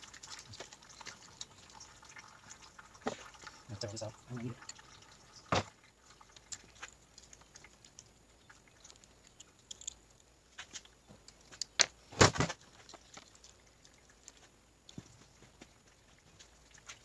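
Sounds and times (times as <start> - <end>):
metal parts and tools clicking: 8.9 - 10.0.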